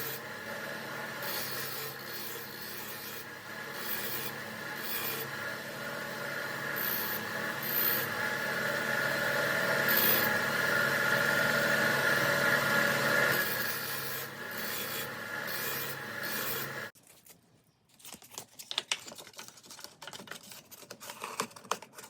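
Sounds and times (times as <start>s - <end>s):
motor hum: 0.0s - 16.9s
grinding wheel scraping rasp: 0.0s - 17.0s.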